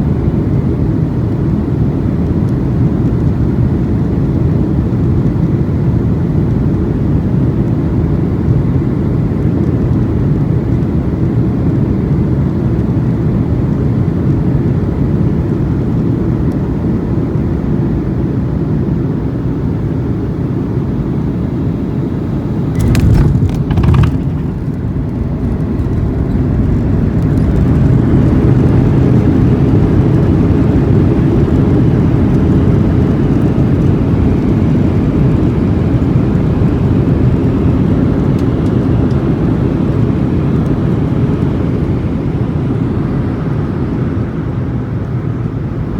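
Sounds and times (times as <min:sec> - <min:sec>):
airliner engines and airflow rumble: 0:00.0 - 0:45.9
brief thumps: 0:22.8 - 0:26.4.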